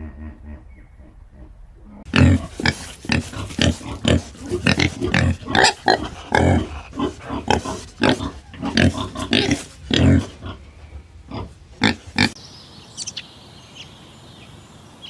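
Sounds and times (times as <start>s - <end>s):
animal making pig-like calls: 2.1s - 12.4s.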